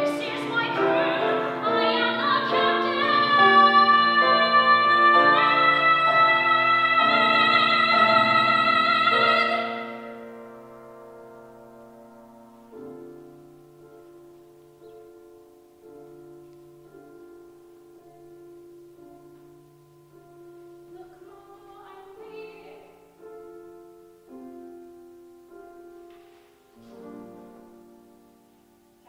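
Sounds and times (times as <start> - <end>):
person singing: 0.0 - 10.3
piano playing slow chords: 0.0 - 29.0.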